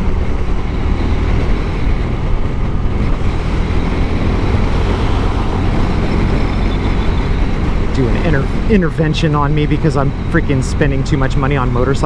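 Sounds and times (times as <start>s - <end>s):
motorcycle engine hum: 0.0s - 12.0s
wind and road noise: 0.0s - 12.0s.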